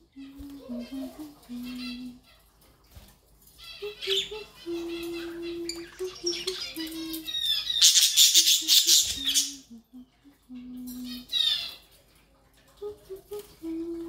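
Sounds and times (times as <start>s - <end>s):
budgerigars chirping and warbling: 3.6s - 9.7s, 11.1s - 11.9s.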